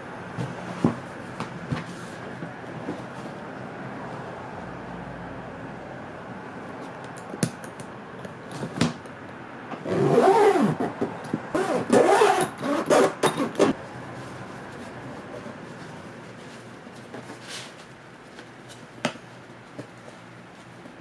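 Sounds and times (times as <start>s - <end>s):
zipper rasping: 9.8s - 13.8s.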